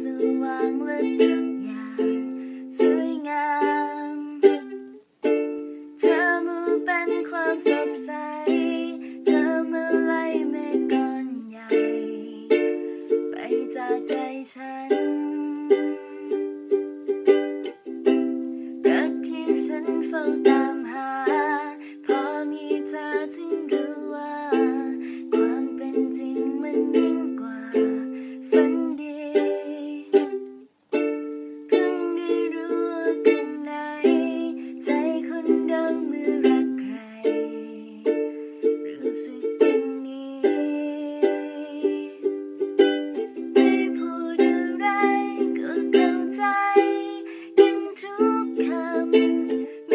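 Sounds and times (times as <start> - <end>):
ukulele strumming and picking: 0.0 - 49.9.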